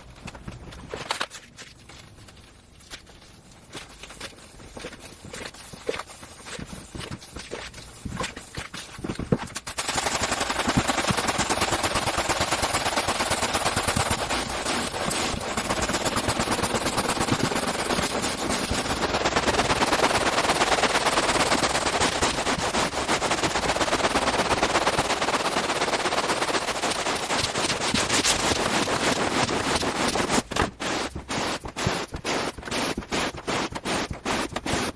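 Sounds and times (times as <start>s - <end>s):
scrubbing strokes: 1.5s - 9.3s, 12.9s - 34.9s
carpet cleaning machine rattling: 9.8s - 34.9s.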